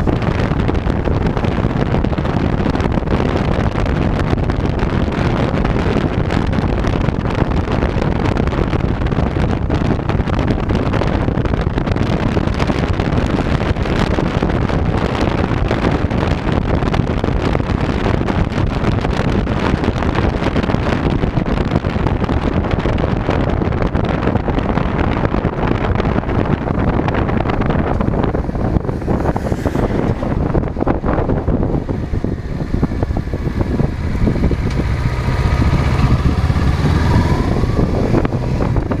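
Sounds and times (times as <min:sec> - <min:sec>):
road and vehicle noise: 0:00.0 - 0:39.0
wind rushing over camera: 0:00.0 - 0:39.0.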